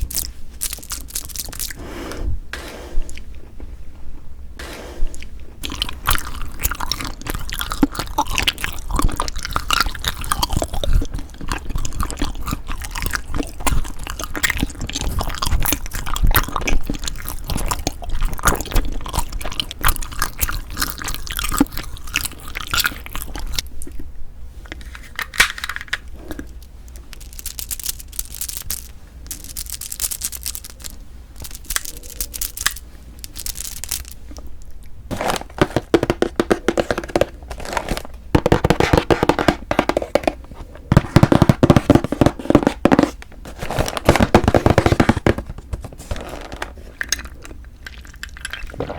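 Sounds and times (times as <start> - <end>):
chewing rice cake: 0.0 - 1.8, 5.1 - 24.1, 26.1 - 36.9, 46.9 - 48.9
mouth clicks and smacks: 5.1 - 24.1, 28.7 - 34.9.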